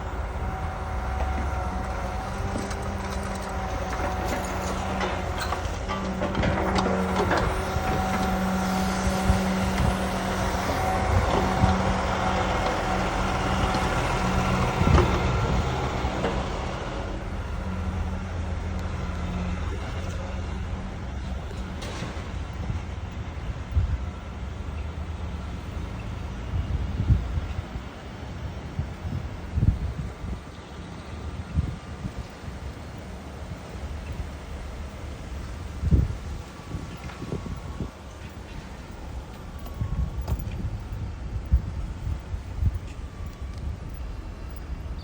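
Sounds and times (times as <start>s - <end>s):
diesel truck engine drone: 0.0s - 45.0s
knocks and clanks: 1.1s - 16.8s, 21.5s - 22.6s.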